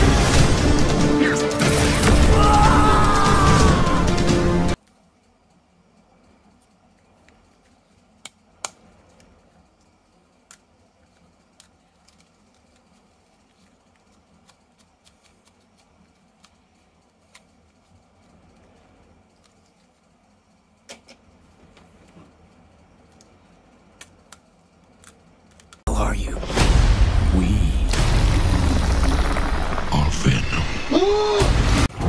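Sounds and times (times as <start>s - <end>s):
plastic toys and packaging handled: 9.0s - 18.3s.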